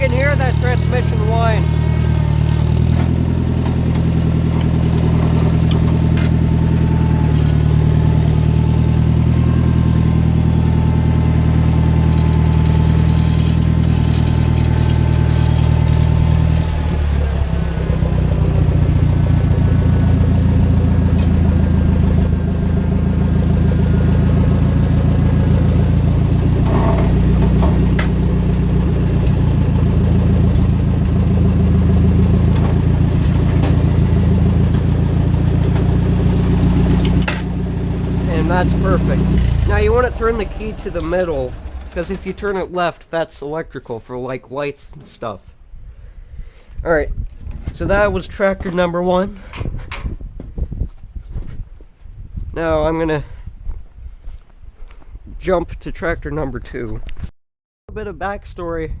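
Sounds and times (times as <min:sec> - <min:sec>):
tractor engine running: 0:00.0 - 0:45.9
transmission whining: 0:00.0 - 0:56.4.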